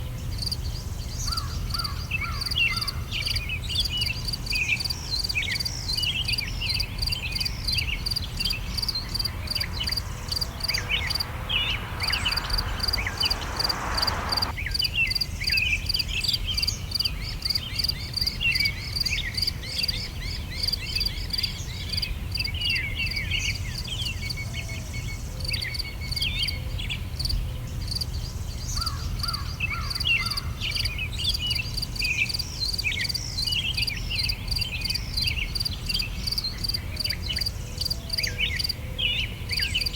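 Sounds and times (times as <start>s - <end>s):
insects chirping: 7.4s - 14.5s
low background rumble: 7.5s - 14.5s
hiss: 8.1s - 14.5s.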